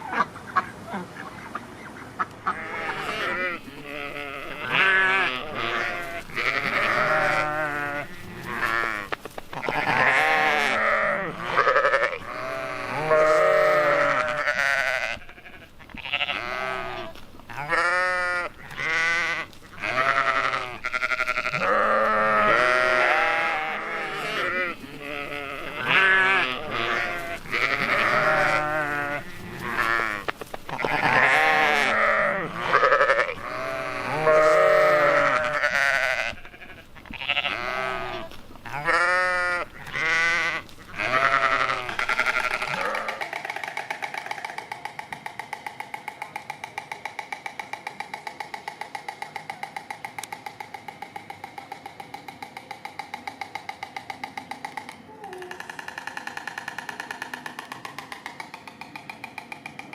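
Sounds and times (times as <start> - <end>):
sheep bleating: 2.4 - 43.2.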